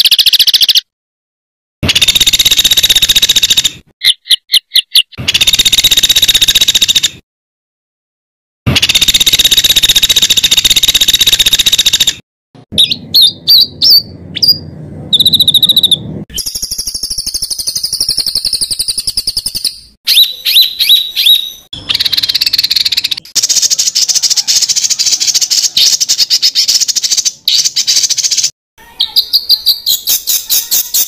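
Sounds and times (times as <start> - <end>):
songbird trills and chirps: 12.8 - 31.0.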